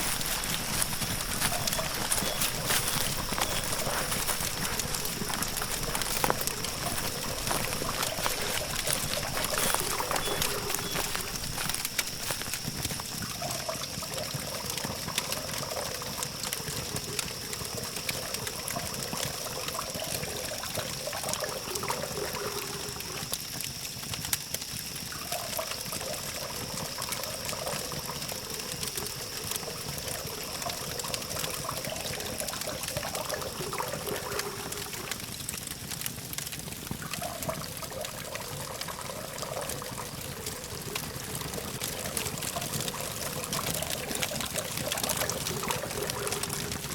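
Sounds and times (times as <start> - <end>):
distant traffic hum: 0.0 - 13.1
campfire crackling: 0.0 - 46.9.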